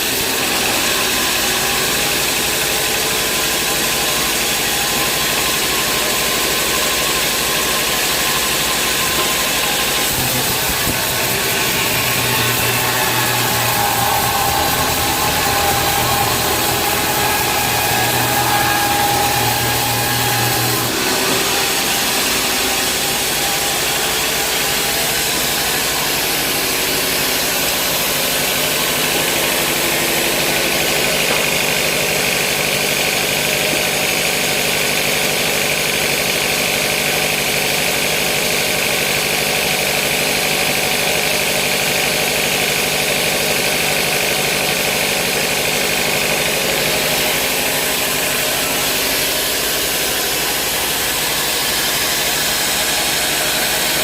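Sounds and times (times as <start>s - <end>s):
high steady whine: 0.0s - 34.1s
band saw mechanical drone: 0.0s - 54.0s.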